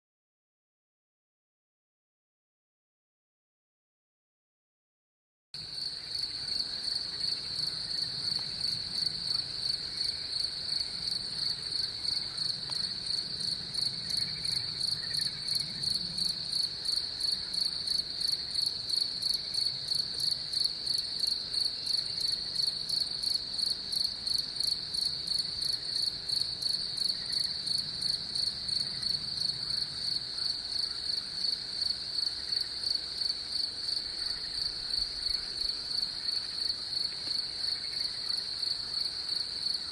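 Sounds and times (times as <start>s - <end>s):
crickets trilling: 5.6s - 39.9s.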